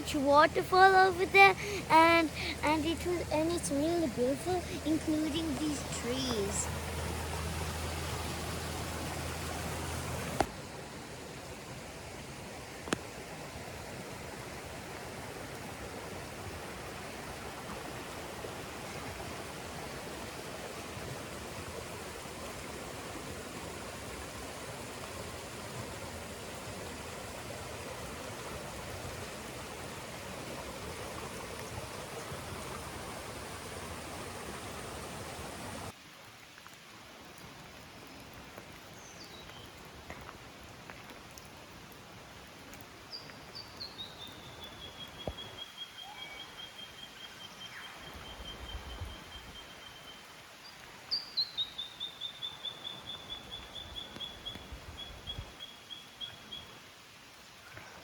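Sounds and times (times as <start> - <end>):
waterfall rushing: 0.0 - 10.5.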